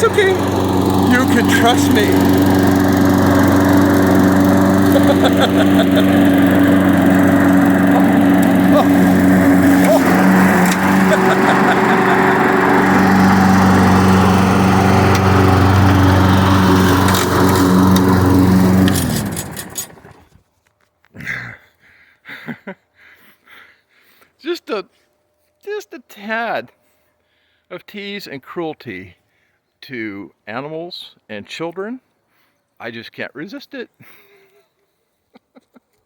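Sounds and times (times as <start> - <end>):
engine winding down: 0.0 - 20.3
lawn mower engine running: 0.0 - 20.4.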